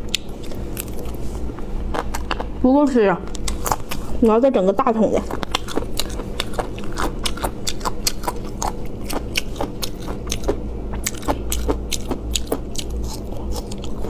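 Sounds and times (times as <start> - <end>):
wet chewing mouth sounds: 0.0 - 1.2, 3.3 - 4.2, 5.1 - 14.0
steady low hum: 0.0 - 14.0.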